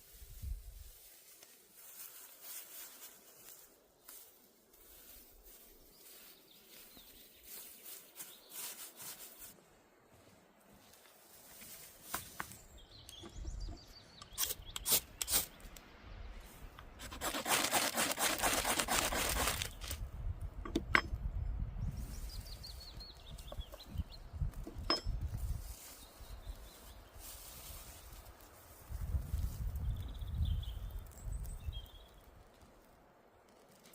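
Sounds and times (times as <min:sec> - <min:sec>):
birds chirping: 0:12.2 - 0:15.8, 0:21.8 - 0:25.2
rasping scraping or sawing: 0:16.9 - 0:20.0
sharp clicks and knocks: 0:20.6 - 0:21.2.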